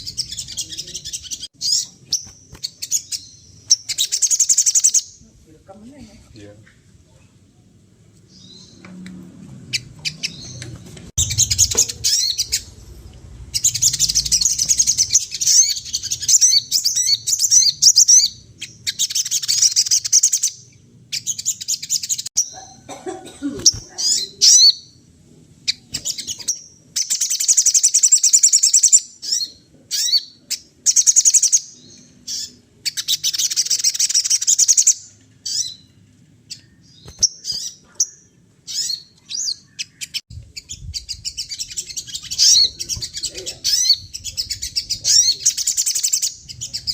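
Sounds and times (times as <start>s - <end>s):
songbird twittering: 0.0s - 5.2s, 9.7s - 22.8s, 36.5s - 46.9s.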